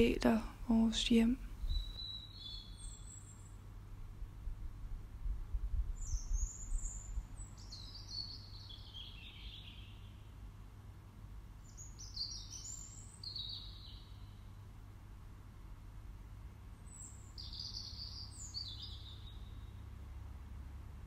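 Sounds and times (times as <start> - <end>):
songbird singing high falling notes: 1.6 - 3.5, 16.9 - 19.7.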